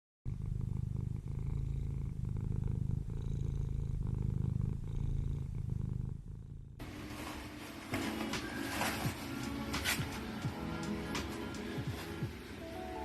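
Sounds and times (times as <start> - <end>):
cat purring: 0.3 - 7.0.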